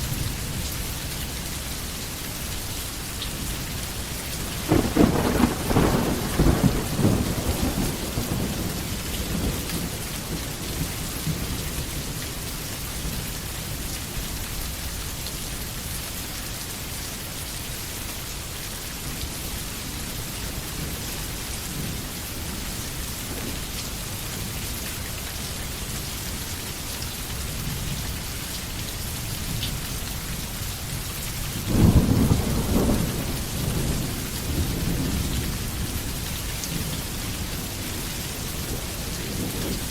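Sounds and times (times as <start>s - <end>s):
steady rain falling: 0.0s - 39.9s
thunder rumbling: 4.4s - 11.6s, 31.7s - 36.1s.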